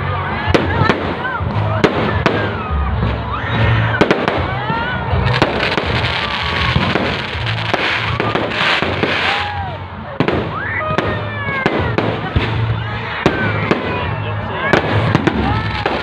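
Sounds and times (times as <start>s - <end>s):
music playing: 0.0s - 16.0s
fireworks bangs: 4.0s - 14.1s, 14.7s - 16.0s
fireworks crackling bursts: 4.0s - 14.1s, 14.7s - 16.0s.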